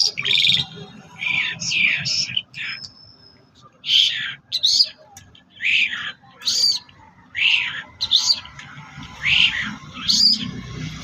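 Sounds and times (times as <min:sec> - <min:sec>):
loud high bird calls: 0:05.6 - 0:10.6.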